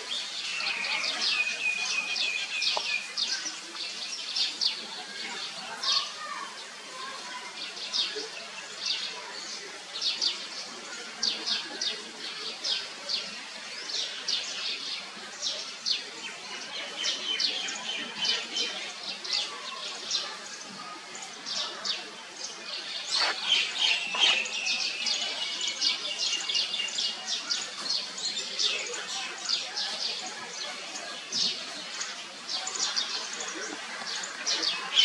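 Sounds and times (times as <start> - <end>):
small birds chirping: 18.4 - 30.7.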